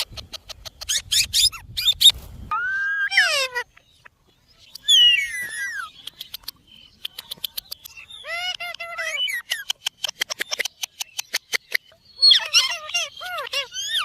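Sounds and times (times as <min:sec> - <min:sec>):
parrot chirping and calling: 0:00.0 - 0:14.0
sharp clicks: 0:06.0 - 0:08.0.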